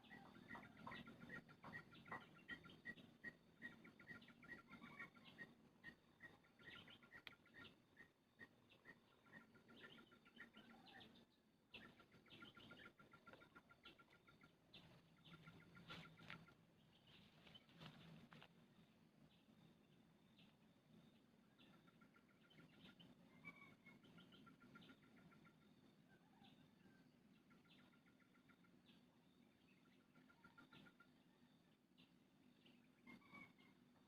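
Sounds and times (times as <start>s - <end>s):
bird high chirps: 0.0s - 18.1s.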